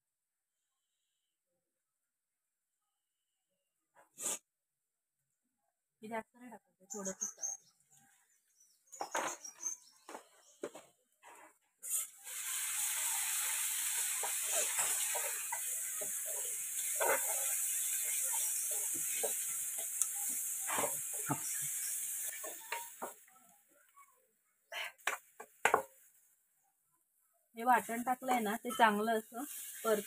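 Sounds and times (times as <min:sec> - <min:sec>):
paste sizzling in hot oil: 0:11.8 - 0:23.3, 0:27.7 - 0:30.0
ladle scraping and knocking pan: 0:14.1 - 0:21.6.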